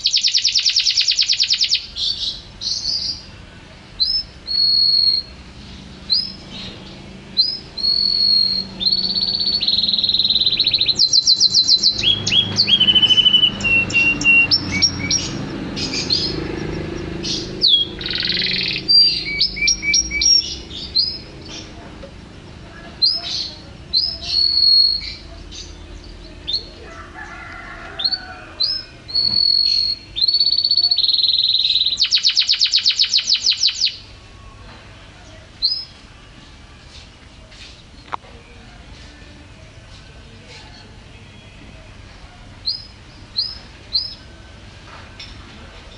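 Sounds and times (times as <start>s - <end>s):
canary singing: 0.0s - 45.9s.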